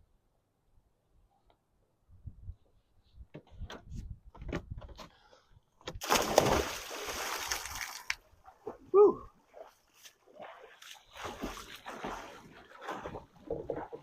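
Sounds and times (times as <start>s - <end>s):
water splashing and sloshing: 5.9s - 14.0s.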